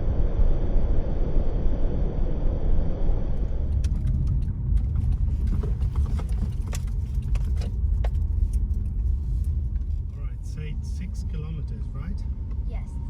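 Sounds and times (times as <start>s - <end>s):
car engine and tyres rumbling: 0.0s - 13.0s
small rattles and clicks: 3.6s - 10.0s.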